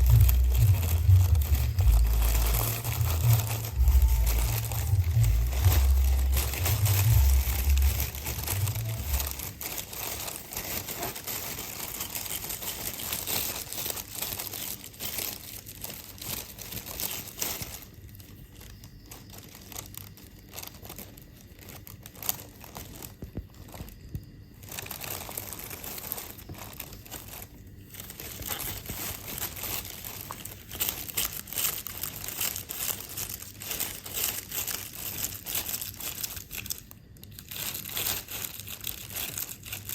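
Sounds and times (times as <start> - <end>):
low rumble: 0.0 - 9.5
plastic bag crinkling: 0.0 - 39.9.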